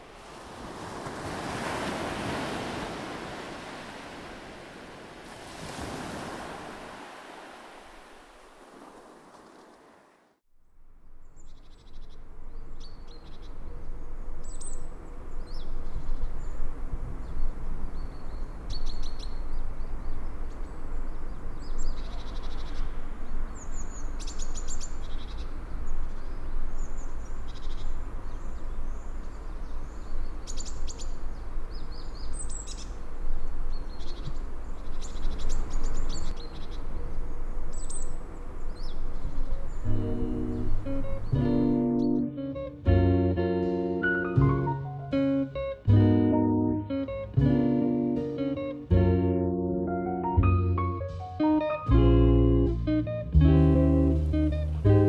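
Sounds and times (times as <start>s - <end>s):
wild birds chirping and singing: 11.3s - 42.3s.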